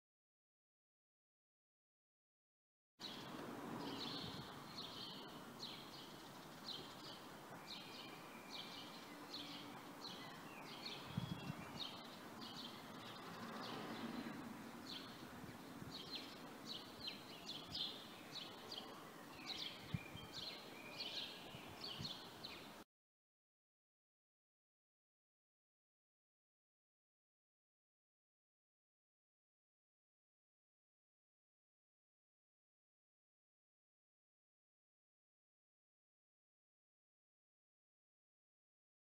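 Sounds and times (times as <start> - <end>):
small birds chirping: 3.0 - 22.8
outdoor background noise: 3.0 - 22.9.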